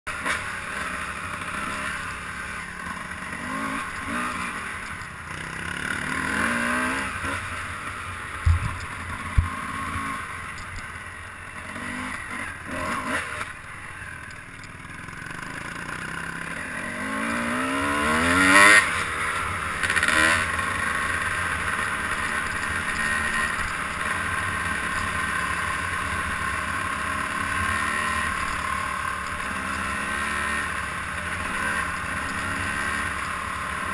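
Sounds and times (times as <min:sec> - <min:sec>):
vehicle engine revving: 0:05.3 - 0:10.3, 0:15.2 - 0:21.0
steady rushing noise: 0:07.2 - 0:10.4
sharp knocks: 0:08.4 - 0:09.5.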